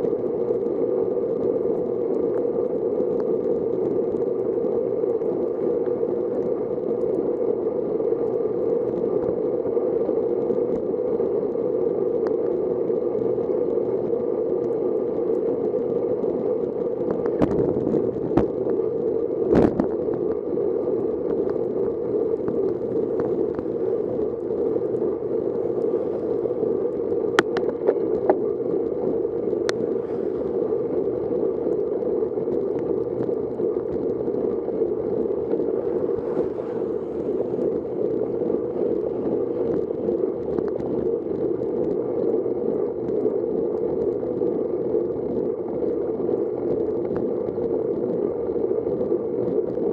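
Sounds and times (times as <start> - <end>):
wind and road noise: 0.0 - 49.9.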